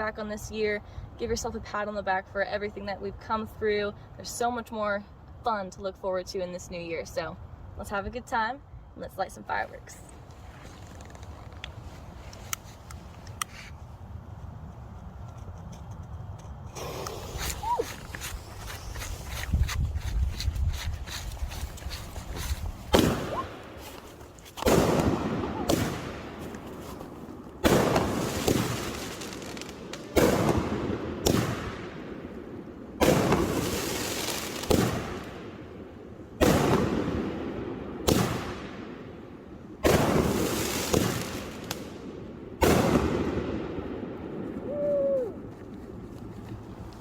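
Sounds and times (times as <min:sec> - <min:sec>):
fireworks bangs: 0:22.9 - 0:23.8, 0:24.6 - 0:26.5, 0:27.6 - 0:31.9.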